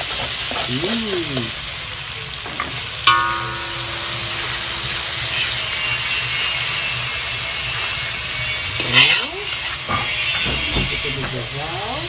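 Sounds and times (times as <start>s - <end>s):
tomatoes sizzling in oil: 0.0s - 12.0s
metal spoon striking ringing wok: 3.1s - 6.2s.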